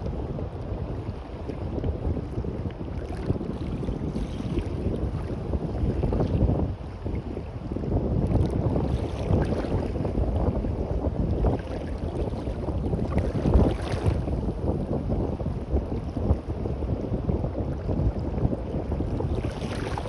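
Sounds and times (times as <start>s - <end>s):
wind gusting against microphone: 0.0s - 20.0s
waves washing on beach: 18.7s - 20.0s.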